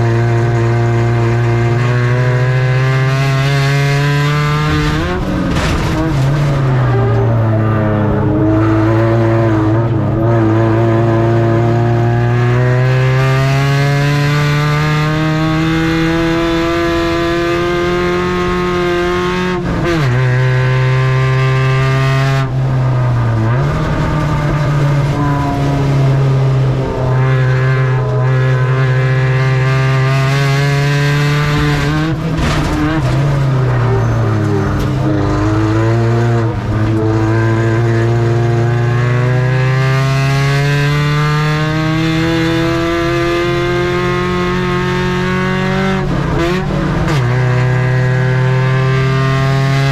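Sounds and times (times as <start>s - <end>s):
race truck engine revving: 0.0s - 49.9s.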